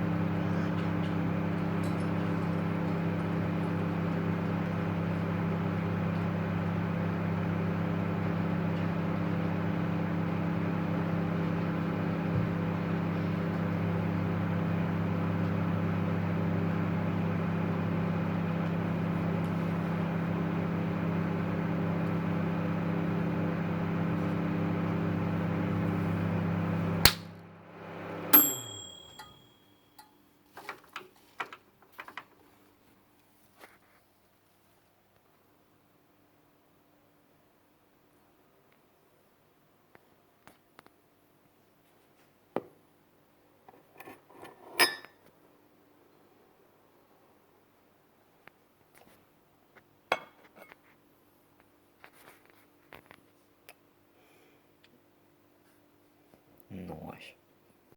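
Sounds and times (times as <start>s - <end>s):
microwave oven humming: 0.0s - 30.1s
microwave stopping click: 7.3s - 29.6s.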